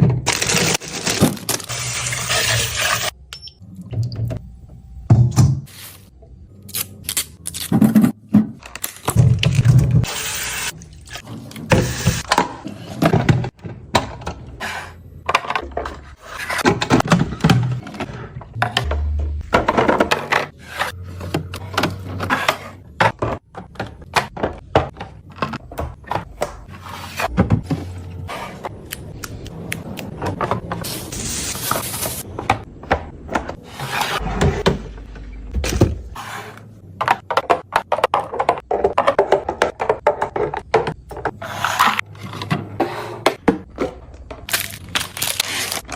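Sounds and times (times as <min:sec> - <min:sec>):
containers clunking on shelves: 0:15.2 - 0:20.6, 0:21.2 - 0:28.4, 0:36.9 - 0:44.5.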